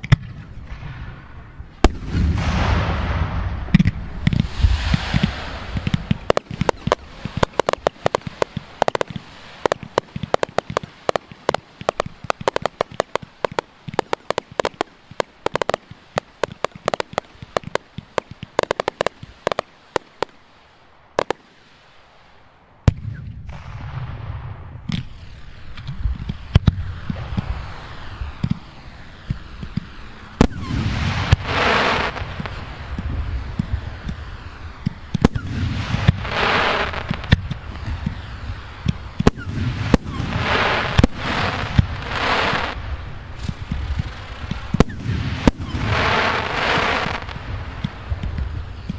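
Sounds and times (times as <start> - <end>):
fireworks cracking volleys: 0.0 - 48.9.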